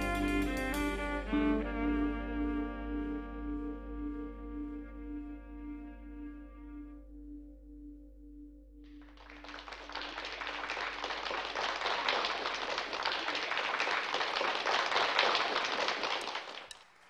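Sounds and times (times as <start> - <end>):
held final note of song: 0.0 - 6.9
audience applause: 9.1 - 17.0.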